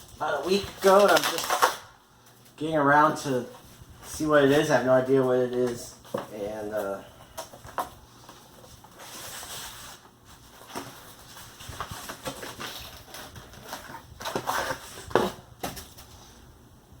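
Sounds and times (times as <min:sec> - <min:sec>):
packaging rustling and scraping: 0:00.0 - 0:16.4.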